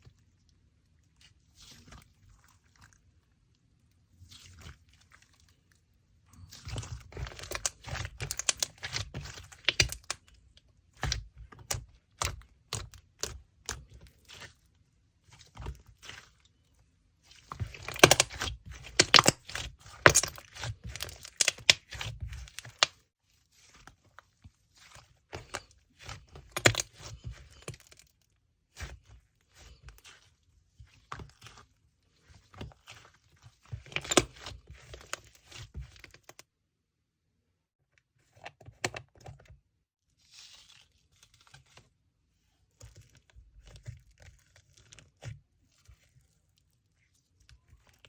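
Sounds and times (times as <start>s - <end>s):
slime crackling and popping: 6.5s - 10.3s, 17.6s - 23.0s, 25.4s - 28.0s.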